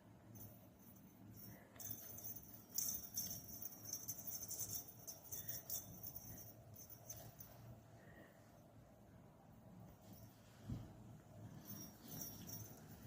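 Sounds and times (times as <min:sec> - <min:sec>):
small jingle bell jingling: 0:00.2 - 0:07.8, 0:11.4 - 0:13.0.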